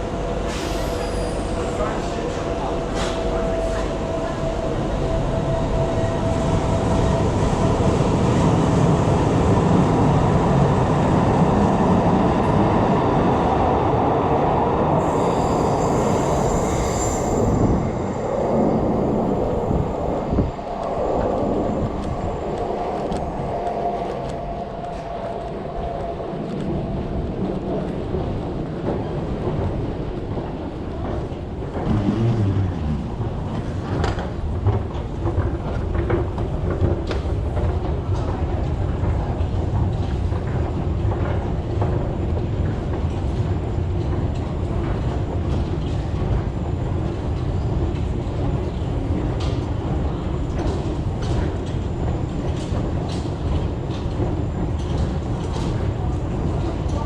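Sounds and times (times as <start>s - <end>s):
train running on rails: 0.0s - 57.0s
high wheel squeal: 0.5s - 2.4s, 15.0s - 18.4s.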